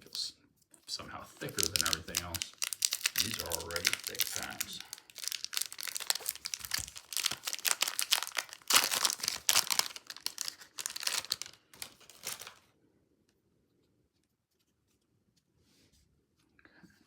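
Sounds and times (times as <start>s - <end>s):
wrapper crinkling and tearing: 1.4s - 12.7s.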